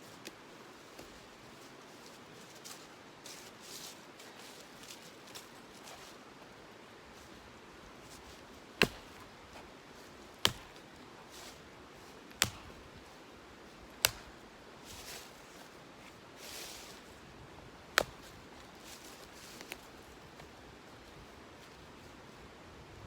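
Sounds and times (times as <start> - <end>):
axe chopping firewood: 8.7 - 9.6, 10.3 - 10.9, 12.3 - 12.9, 13.9 - 14.4, 18.0 - 18.4.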